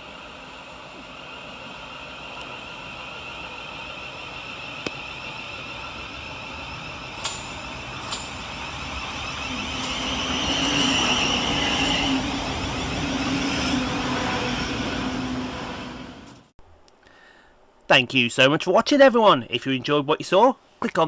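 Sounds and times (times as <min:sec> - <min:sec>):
train traction motors whining: 0:00.0 - 0:16.5
wheel and rail noise: 0:00.0 - 0:16.5.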